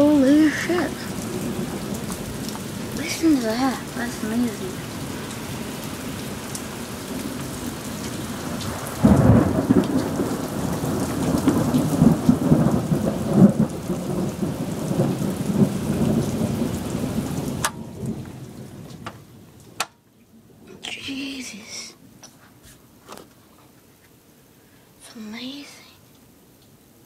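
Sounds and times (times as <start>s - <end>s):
thunder clap and rumble: 0.0s - 19.4s
heavy rain pouring: 0.0s - 27.0s.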